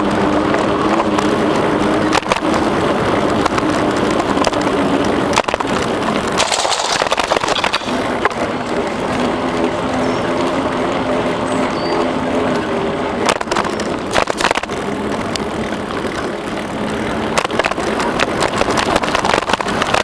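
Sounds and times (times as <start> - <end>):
bicycle tyre noise: 0.0 - 20.0
bike knocks and rattles: 0.4 - 9.6, 13.2 - 20.0.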